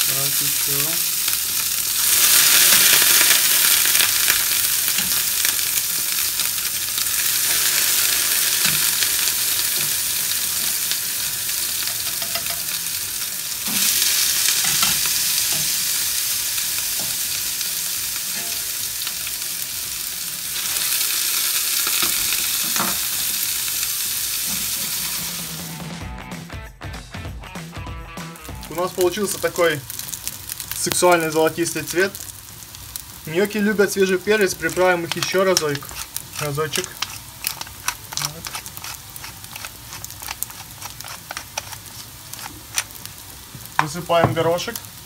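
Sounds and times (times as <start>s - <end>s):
gnocchi sizzling in oil: 0.0s - 25.9s, 28.3s - 45.0s.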